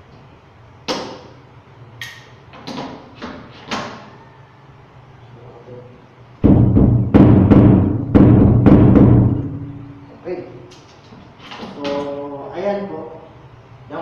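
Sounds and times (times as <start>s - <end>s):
drum struck hard ringing: 6.4s - 10.0s.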